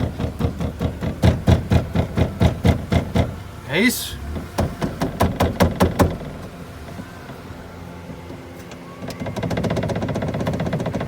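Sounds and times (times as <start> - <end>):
car door rattling: 0.0 - 8.4
sharp knocks: 4.6 - 6.3.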